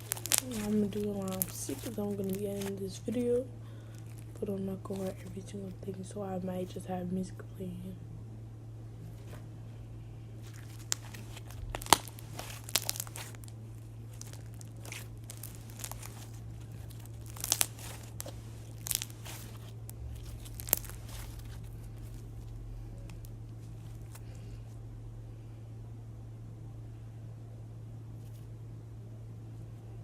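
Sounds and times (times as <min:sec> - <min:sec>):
slime crackling and popping: 0:00.0 - 0:06.0, 0:10.4 - 0:24.4.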